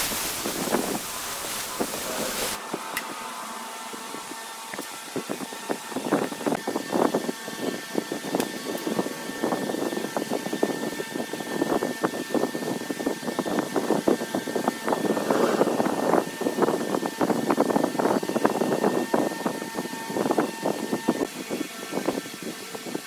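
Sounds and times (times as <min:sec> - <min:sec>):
tool scraping spinning wood: 0:00.0 - 0:02.6, 0:13.2 - 0:19.0
faint motor whine: 0:00.0 - 0:23.0.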